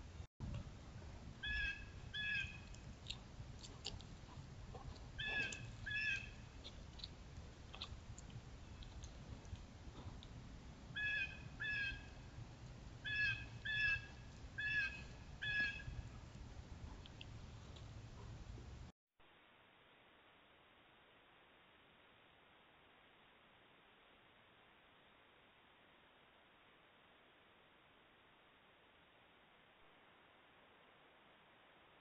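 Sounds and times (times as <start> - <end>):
bird calling: 1.4 - 2.8, 5.1 - 7.1, 11.0 - 12.2, 13.0 - 16.1.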